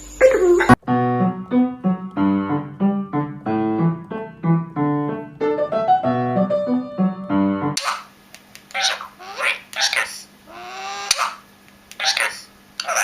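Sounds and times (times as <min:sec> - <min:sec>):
piano-like keyboard music: 0:00.2 - 0:07.8.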